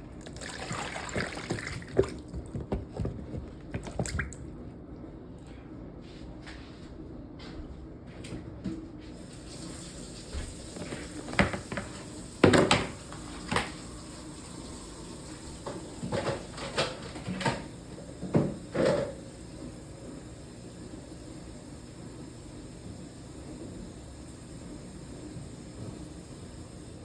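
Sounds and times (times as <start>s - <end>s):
tap running into a sink: 0.2s - 4.5s, 9.2s - 14.0s, 14.6s - 19.2s
dish clunking in a sink: 11.2s - 13.8s, 15.7s - 19.2s.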